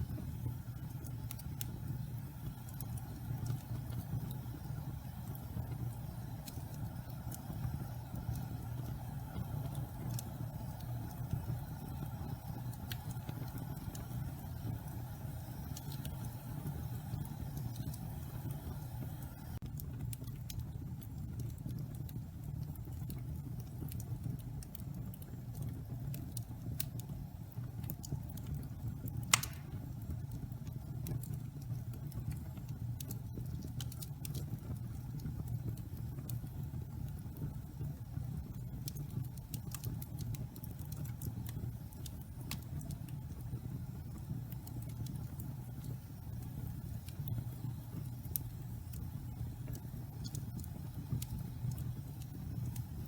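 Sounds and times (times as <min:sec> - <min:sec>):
fire crackling: 0:00.0 - 0:53.0
wood fire burning: 0:00.0 - 0:53.0
loud pop of burning wood: 0:29.3 - 0:30.0.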